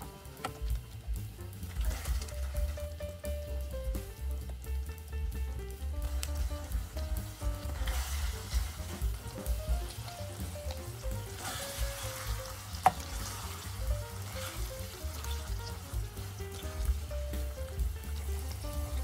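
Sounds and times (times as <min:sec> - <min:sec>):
soft background music with beat: 0:00.0 - 0:19.0
food sizzling in a pan: 0:05.8 - 0:19.0
wooden spoon stirring: 0:06.0 - 0:19.0.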